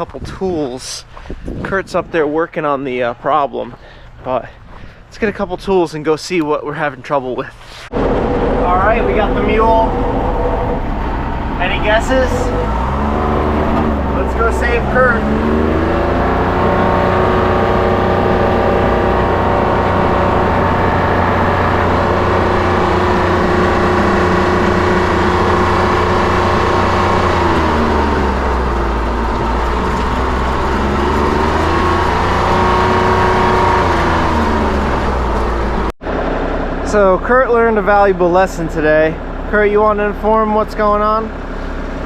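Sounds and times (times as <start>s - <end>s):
utility vehicle engine running: 7.9s - 38.3s.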